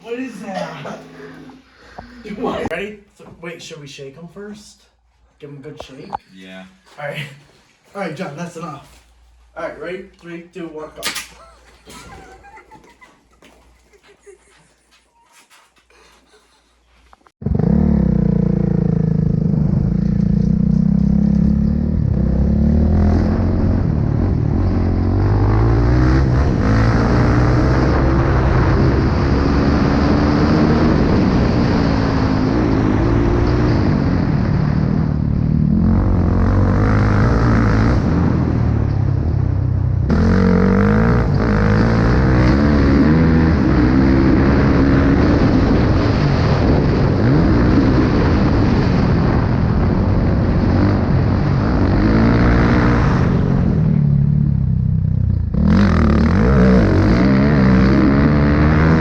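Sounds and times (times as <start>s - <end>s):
pit bike engines revving: 17.4s - 59.0s.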